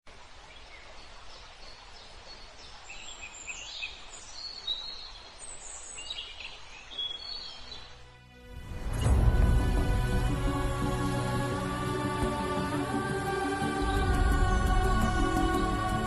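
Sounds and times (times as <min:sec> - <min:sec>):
music: 0:07.6 - 0:16.0.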